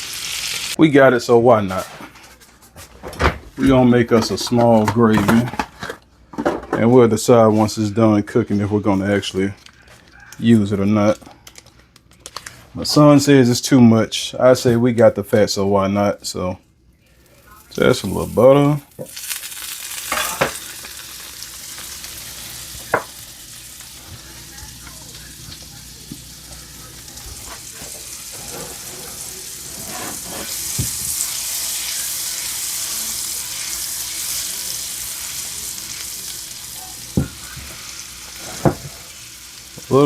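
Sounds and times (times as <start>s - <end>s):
butter sizzling in a pan: 0.0s - 0.8s, 17.3s - 40.0s.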